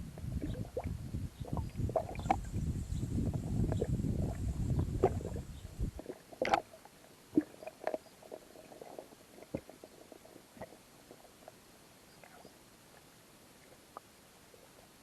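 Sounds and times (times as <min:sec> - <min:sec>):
low rumble: 0:00.0 - 0:06.0
underwater clicks and knocks: 0:00.2 - 0:02.6, 0:03.2 - 0:06.7.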